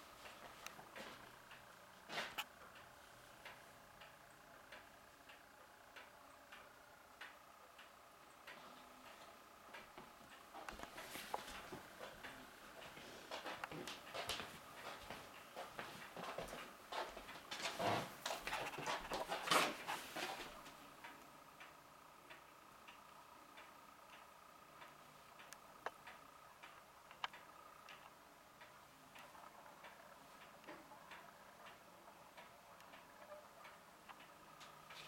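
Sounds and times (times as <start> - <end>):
faint steady hum: 0.0 - 35.0
clock ticking: 0.2 - 17.6, 18.3 - 35.0.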